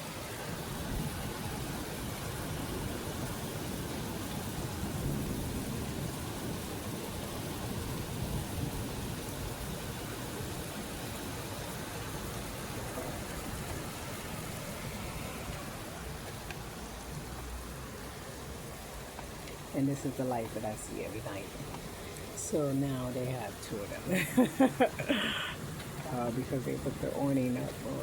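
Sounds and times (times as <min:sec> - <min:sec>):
rain pouring: 0:00.0 - 0:28.0
thunder rumbling: 0:00.7 - 0:19.0.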